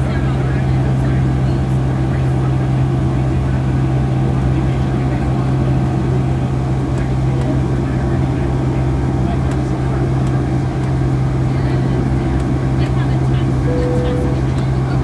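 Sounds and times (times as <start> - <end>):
jet engine cabin drone: 11.6 - 15.0.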